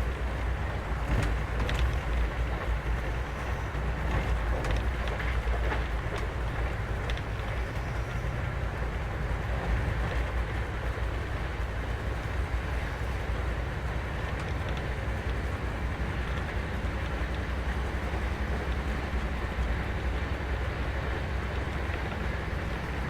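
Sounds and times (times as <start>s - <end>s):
passenger train rumbling: 0.0s - 23.0s
faint clicks: 1.0s - 8.3s, 14.2s - 20.0s.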